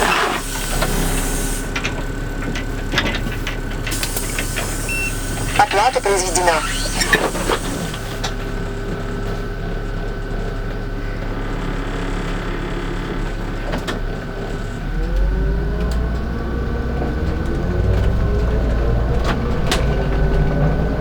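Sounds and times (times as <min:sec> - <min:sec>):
bus engine running: 0:00.0 - 0:21.0
thin steady whine: 0:04.9 - 0:07.8.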